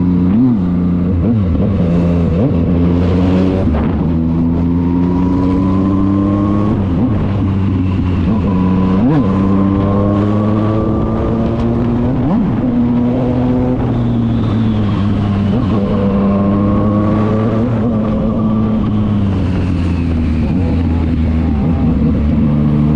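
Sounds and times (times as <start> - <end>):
motorcycle engine shifting gears: 0.0 - 22.9.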